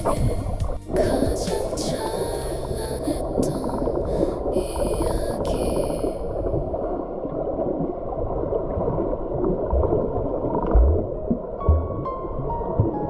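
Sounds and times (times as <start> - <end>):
underwater stream rushing and bubbling: 0.0 - 13.0.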